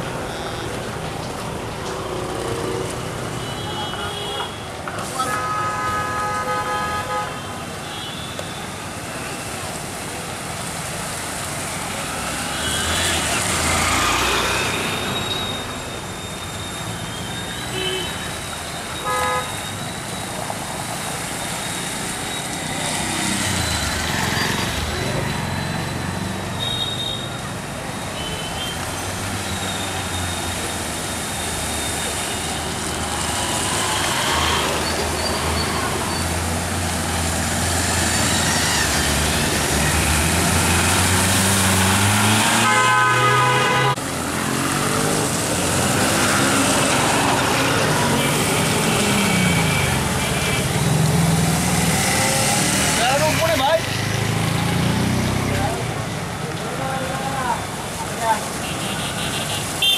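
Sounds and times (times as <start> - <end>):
vehicles passing: 0.0 - 59.9.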